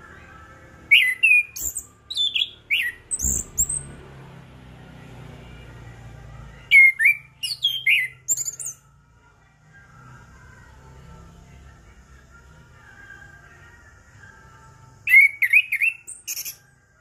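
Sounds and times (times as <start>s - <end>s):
thrush singing whistled notes: 0.8s - 4.0s, 6.6s - 8.8s, 15.0s - 16.7s
faint low hum: 8.3s - 15.5s.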